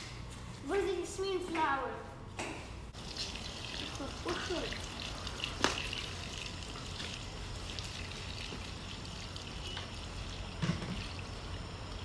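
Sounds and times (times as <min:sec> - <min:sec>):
running trickling water: 0:03.0 - 0:12.0.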